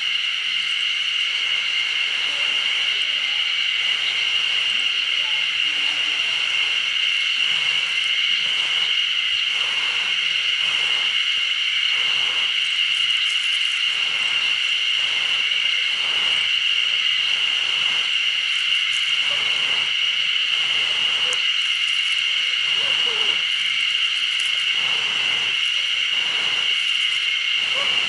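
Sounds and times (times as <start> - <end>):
high-pitched insect chorus: 0.0 - 28.0.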